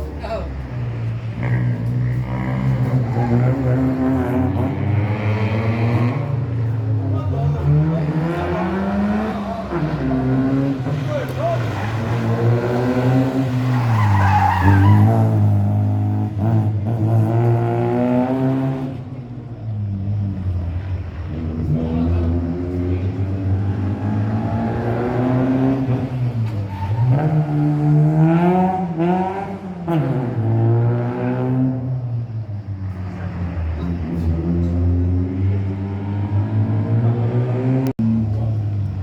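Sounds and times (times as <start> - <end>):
tyres skidding on tarmac: 0.0 - 39.0
car engine revving hard: 1.4 - 6.4, 7.0 - 13.8, 21.4 - 26.3, 27.1 - 32.0.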